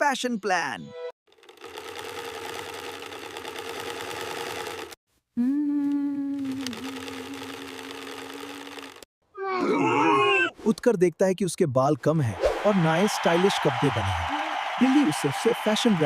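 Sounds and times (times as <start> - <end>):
sewing machine stitching: 1.3 - 5.0, 6.4 - 9.1.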